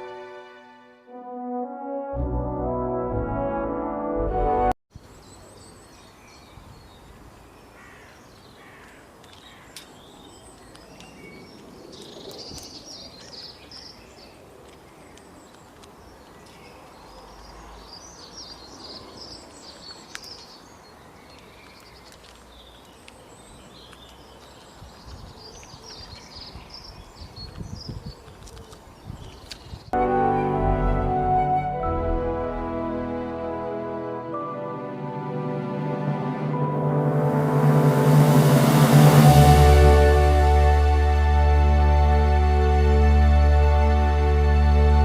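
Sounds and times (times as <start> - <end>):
brass music: 0.0 - 4.8, 30.0 - 45.0.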